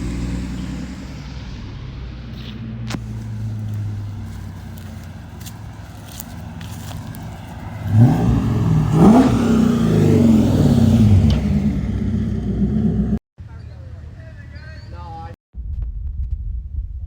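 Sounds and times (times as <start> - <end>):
car engine idling and revving: 0.0 - 13.2.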